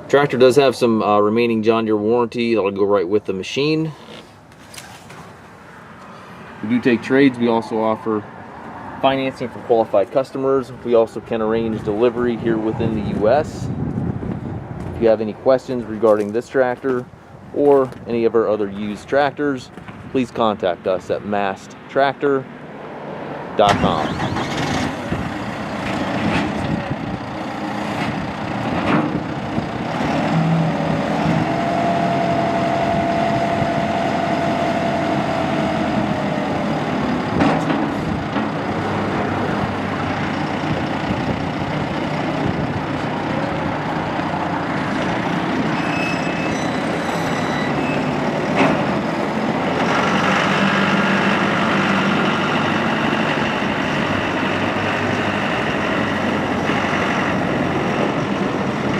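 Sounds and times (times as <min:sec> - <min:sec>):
diesel engine running: 0:23.6 - 0:58.9.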